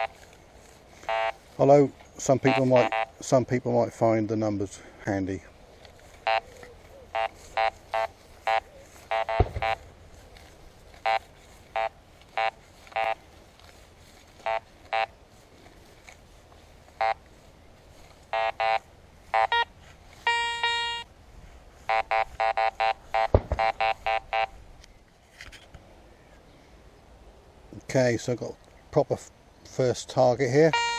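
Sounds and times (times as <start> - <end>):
metal detector steady tone: 0.0 - 0.4, 1.0 - 1.7, 2.3 - 3.2, 6.2 - 10.0, 11.0 - 13.3, 14.3 - 15.2, 16.9 - 17.3, 18.2 - 21.1, 21.8 - 24.6, 30.7 - 30.9
metal detector short beeps: 1.1 - 1.4, 2.4 - 3.1, 7.2 - 9.8, 18.3 - 21.1, 21.9 - 24.5
dull thumps: 9.3 - 9.8, 23.3 - 23.8.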